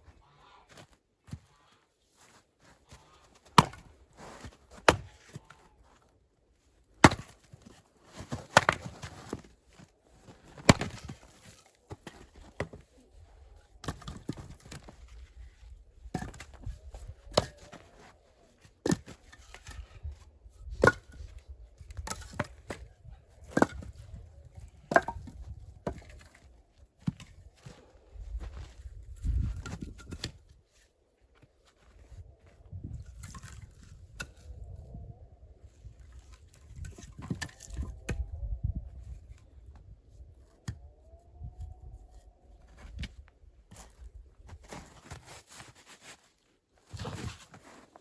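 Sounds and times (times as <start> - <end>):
axe chopping wood: 3.4 - 3.9, 4.7 - 5.4, 7.0 - 7.7, 8.3 - 9.5, 10.6 - 11.3, 13.8 - 14.7, 16.1 - 16.7, 17.3 - 17.7, 20.8 - 21.2, 23.5 - 23.9, 24.9 - 26.4
handling and rustling: 43.7 - 48.0.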